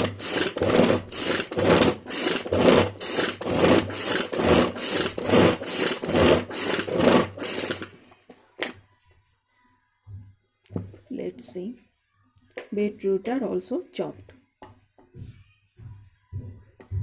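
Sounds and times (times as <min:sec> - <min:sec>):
pull-cord chopper whirring: 0:00.0 - 0:07.9.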